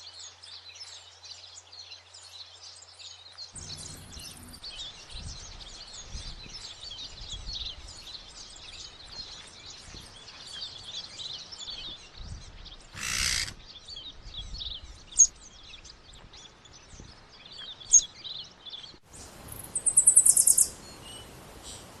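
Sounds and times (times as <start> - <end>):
noisy rustle: 3.6 - 17.8
birds chirping and singing: 3.6 - 19.0.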